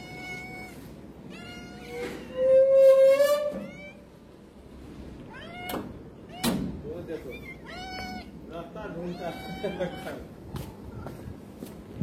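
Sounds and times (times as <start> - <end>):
cats meowing: 0.0 - 2.7, 3.5 - 4.3, 5.2 - 11.1.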